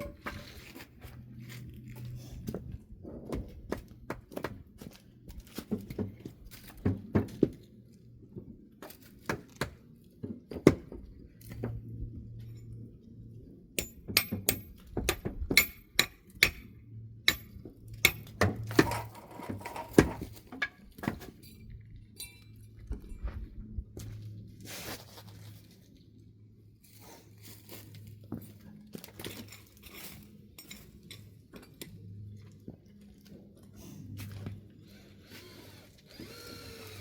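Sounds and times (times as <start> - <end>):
sharp ringing clinks: 22.2 - 22.6.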